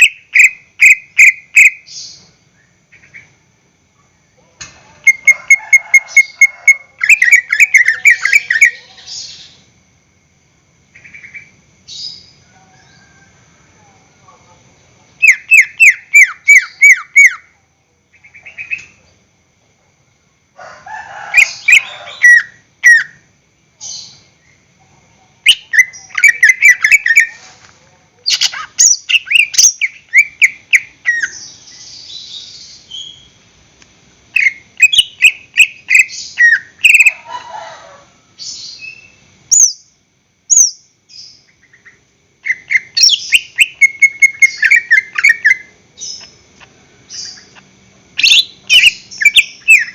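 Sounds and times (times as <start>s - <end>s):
bird chirping song: 0.0s - 3.4s, 5.0s - 9.7s, 10.9s - 13.2s, 14.2s - 17.5s, 18.1s - 19.2s, 21.4s - 27.5s, 28.2s - 33.4s, 34.3s - 37.2s, 38.4s - 49.9s
harsh rasping bird calls: 15.2s - 17.5s, 34.4s - 37.7s, 41.5s - 49.9s.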